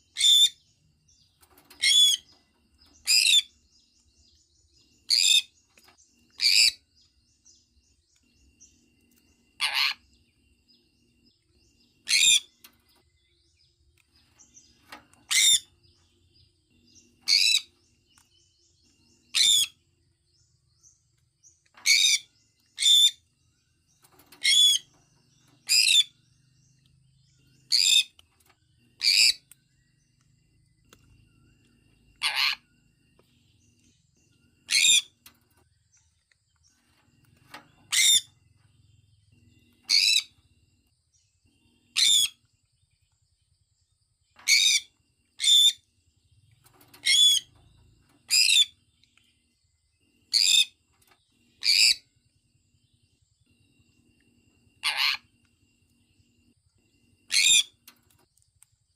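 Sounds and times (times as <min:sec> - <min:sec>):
parrot shrill calls: 0:09.6 - 0:10.0, 0:32.2 - 0:32.6, 0:54.8 - 0:55.2, 0:57.3 - 0:57.7.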